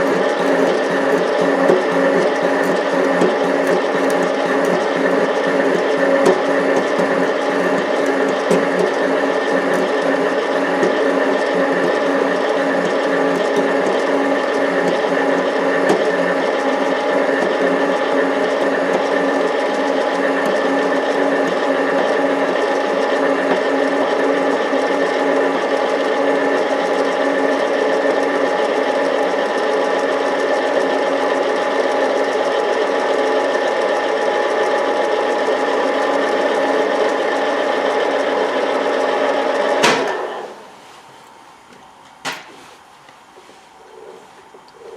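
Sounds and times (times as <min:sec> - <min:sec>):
lathe motor and gear whine: 0:00.0 - 0:44.9.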